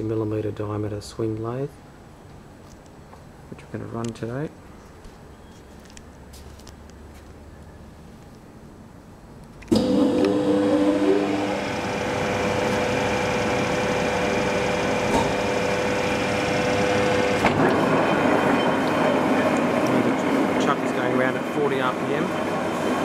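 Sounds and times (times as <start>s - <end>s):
lathe running with rising whine: 9.7s - 23.0s.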